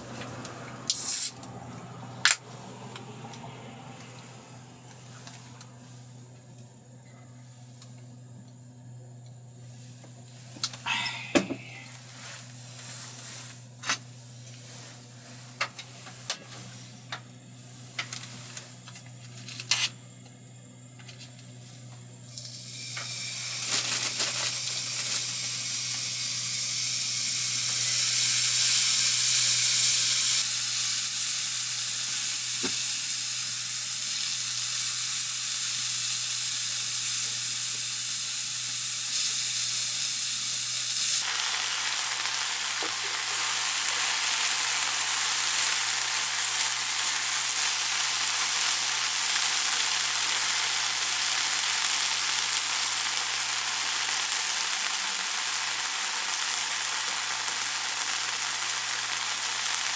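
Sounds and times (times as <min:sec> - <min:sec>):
food sizzling in a pan: 0:09.8 - 0:19.2, 0:21.5 - 0:59.9.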